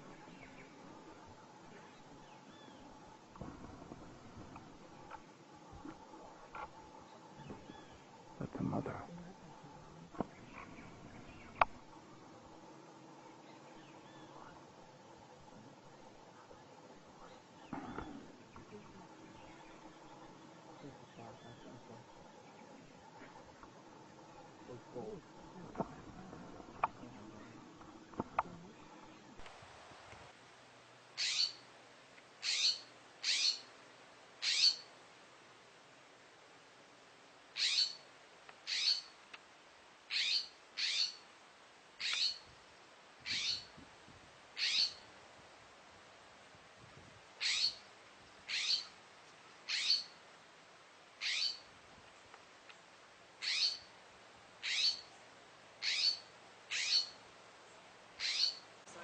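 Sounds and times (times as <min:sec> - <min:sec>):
bird giving short high calls: 0:31.2 - 0:31.6, 0:32.4 - 0:33.7, 0:34.4 - 0:34.9, 0:37.6 - 0:38.0, 0:38.7 - 0:39.1, 0:40.1 - 0:41.2, 0:43.3 - 0:43.7, 0:44.6 - 0:45.0, 0:47.4 - 0:47.8, 0:48.5 - 0:48.9, 0:49.7 - 0:50.2, 0:51.2 - 0:51.6, 0:53.4 - 0:53.8, 0:54.6 - 0:55.1, 0:55.8 - 0:57.2, 0:58.2 - 0:58.6.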